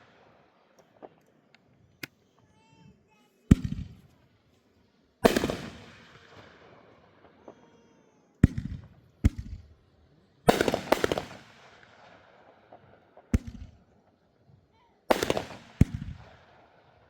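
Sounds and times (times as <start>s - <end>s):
fireworks bangs: 3.4s - 4.2s, 5.2s - 9.7s, 10.4s - 14.0s, 15.1s - 17.0s
firework cracks: 5.2s - 9.7s, 10.5s - 13.9s, 15.1s - 16.4s.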